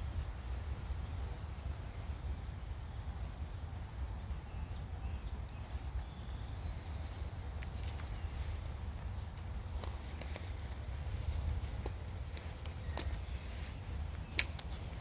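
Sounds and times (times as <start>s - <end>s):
small bird chirping: 0.0s - 15.0s.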